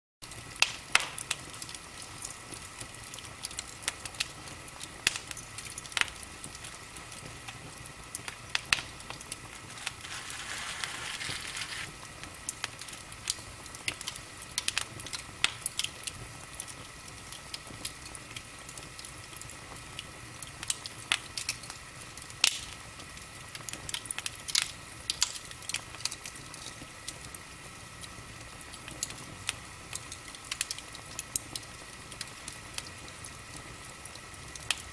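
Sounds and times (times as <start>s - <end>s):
wood fire crackling and popping: 0.3s - 34.9s
burning wood hissing: 8.5s - 12.1s.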